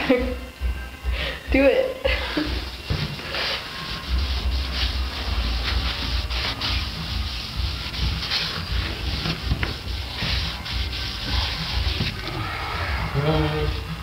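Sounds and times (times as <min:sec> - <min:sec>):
cloth rubbing on wood: 0:02.6 - 0:12.4.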